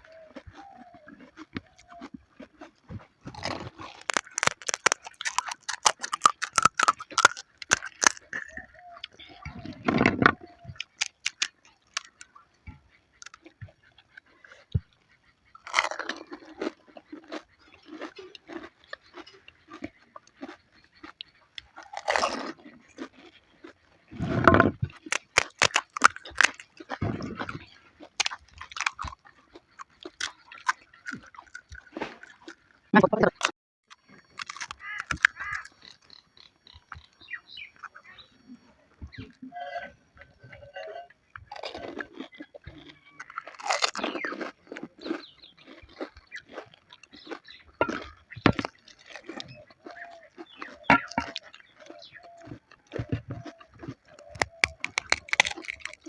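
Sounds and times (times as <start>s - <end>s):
crisp shells crunching: 0.1s - 8.9s, 10.8s - 12.3s, 15.6s - 19.8s, 24.7s - 32.6s, 34.3s - 36.0s, 41.5s - 56.0s
deep mouth sounds: 24.1s - 25.4s, 27.0s - 27.7s, 33.0s - 33.5s.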